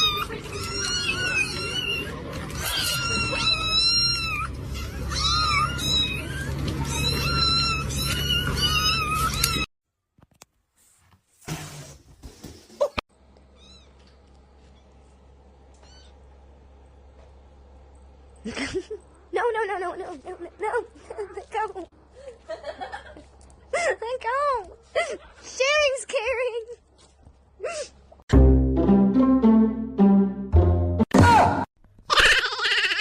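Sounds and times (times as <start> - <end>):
kittens meowing: 0.0 - 9.7.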